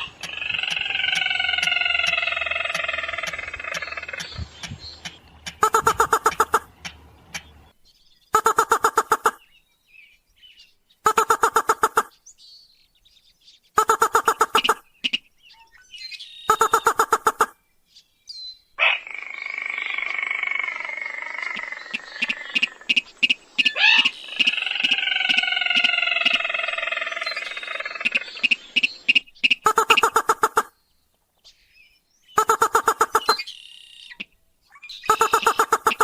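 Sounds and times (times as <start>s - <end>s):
rail rattling call bursts: 5.0s - 7.5s, 35.1s - 36.0s.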